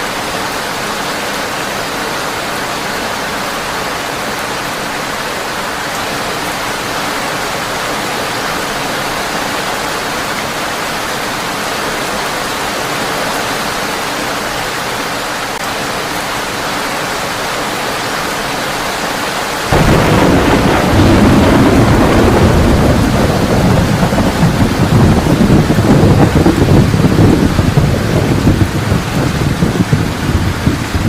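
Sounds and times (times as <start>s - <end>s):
heavy rain on a tin roof: 0.0s - 31.0s
thunder rumbling: 19.7s - 31.0s.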